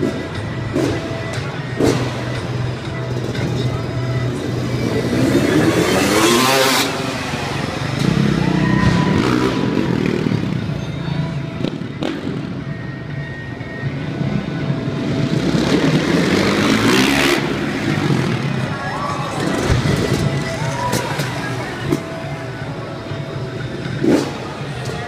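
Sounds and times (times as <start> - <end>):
dirt bike engine revving: 0.0 - 2.6, 3.2 - 10.7, 15.0 - 18.7, 23.7 - 25.0
background music: 0.0 - 25.0.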